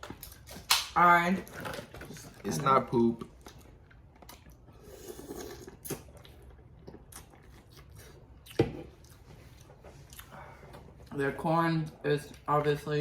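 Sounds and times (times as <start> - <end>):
shells cracking being peeled: 0.0 - 1.0.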